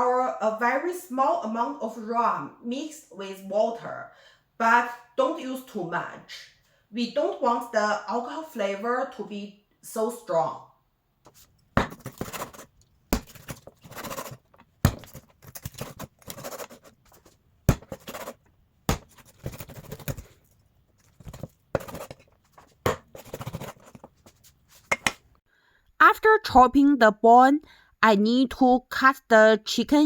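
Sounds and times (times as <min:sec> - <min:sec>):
knife chopping chicken bones: 0:17.7 - 0:20.4.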